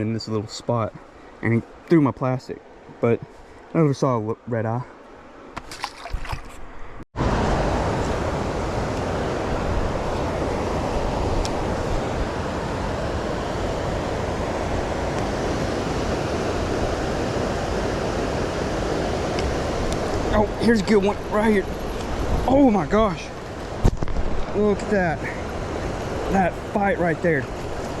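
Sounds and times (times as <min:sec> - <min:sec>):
creek water rushing over rocks: 0:07.2 - 0:28.0.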